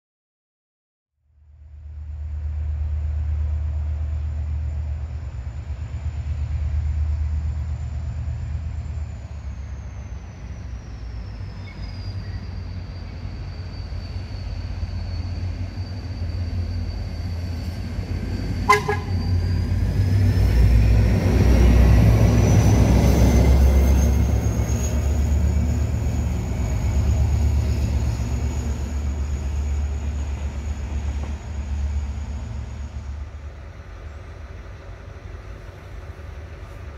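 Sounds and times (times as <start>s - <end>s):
diesel locomotive rumbling: 1.5s - 36.9s
short horn toot: 18.7s - 19.3s.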